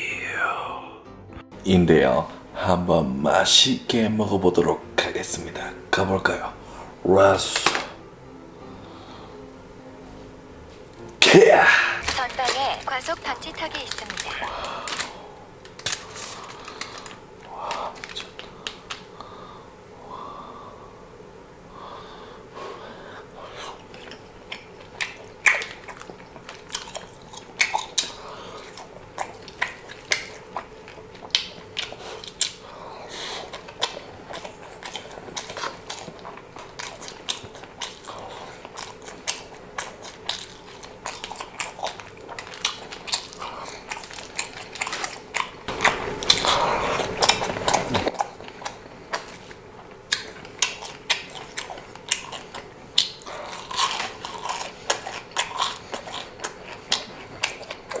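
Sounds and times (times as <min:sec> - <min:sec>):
biting and chewing food: 0:12.0 - 0:19.4, 0:23.2 - 0:58.0.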